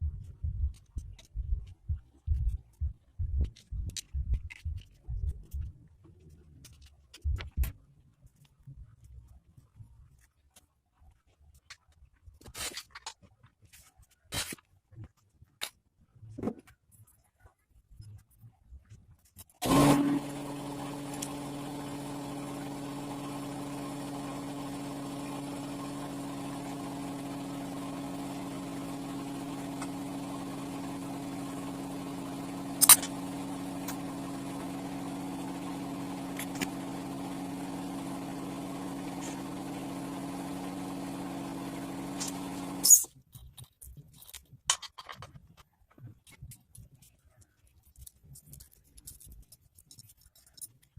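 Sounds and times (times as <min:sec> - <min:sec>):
motorcycle engine idling: 0:19.7 - 0:42.9.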